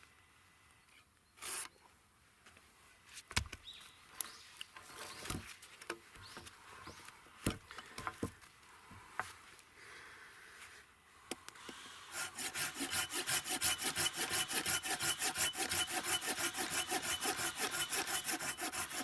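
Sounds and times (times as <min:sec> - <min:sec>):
rustle: 0:00.0 - 0:12.1.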